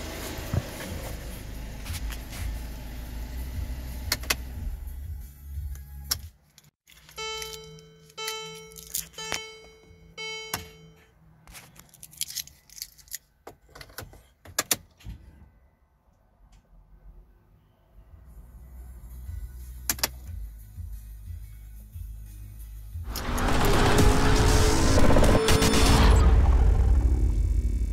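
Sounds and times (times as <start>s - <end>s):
keys clicking and rattling: 6.5s - 9.4s, 11.7s - 13.2s.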